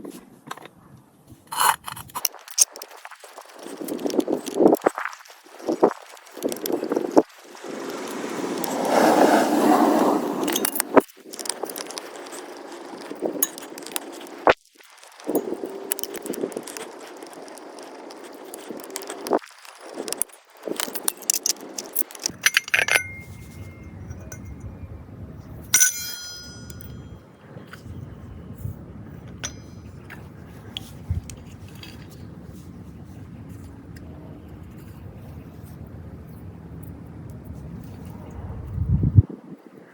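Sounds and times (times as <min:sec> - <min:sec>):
scraping rustling noise: 0:01.3 - 0:24.6
small hard objects clinking: 0:10.5 - 0:24.6, 0:25.7 - 0:27.1
light metallic clinks: 0:20.8 - 0:24.7, 0:25.7 - 0:27.2, 0:29.3 - 0:30.2.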